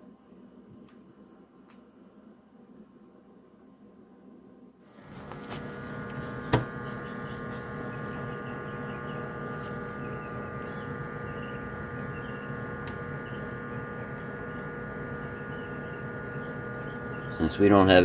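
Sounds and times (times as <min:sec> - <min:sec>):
heat gun fan humming: 0:04.8 - 0:18.0.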